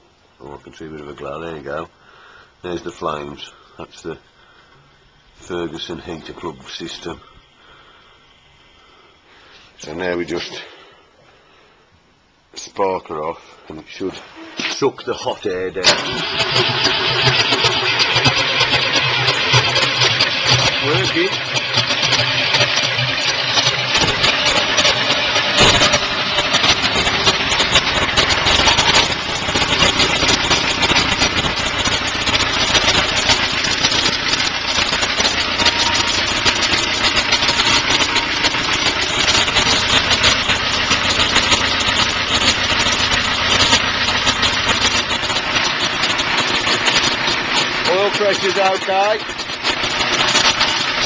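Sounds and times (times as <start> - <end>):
diesel engine running: 15.6 - 51.0.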